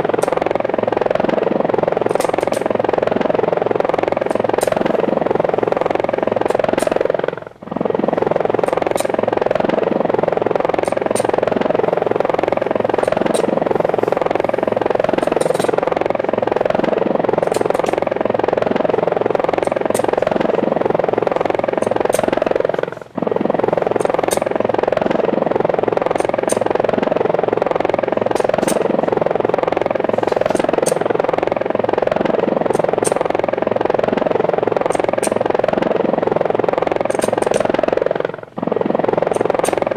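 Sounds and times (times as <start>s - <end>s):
helicopter rotor noise: 0.0s - 39.9s.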